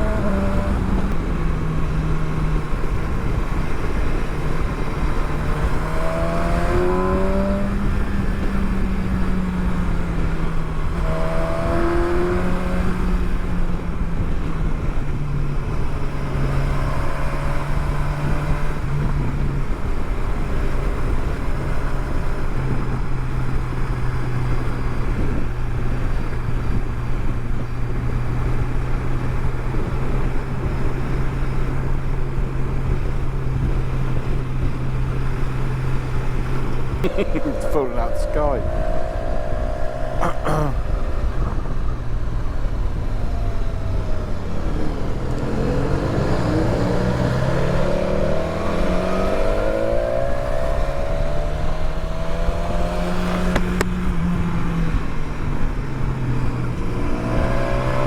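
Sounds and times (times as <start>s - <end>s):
motorcycle engine revving: 0.0s - 26.8s, 27.9s - 58.0s
wind rush: 35.9s - 54.8s.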